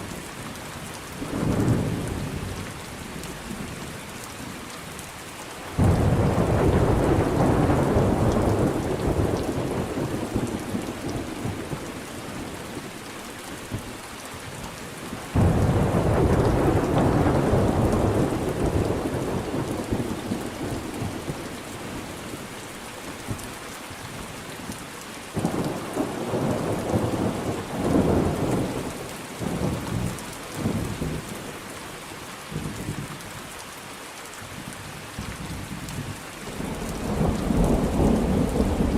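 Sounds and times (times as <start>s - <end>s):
steady rain: 0.0s - 38.9s
thunder rolling: 5.8s - 11.9s, 15.4s - 21.4s, 36.7s - 38.9s.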